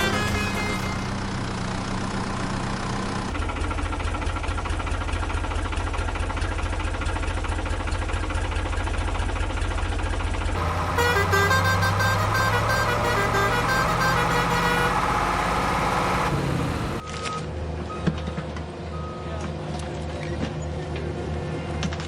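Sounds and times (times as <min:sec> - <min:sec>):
music with horn-like tones: 0:00.0 - 0:01.2, 0:10.6 - 0:17.0
diesel engine chugging: 0:00.0 - 0:17.0.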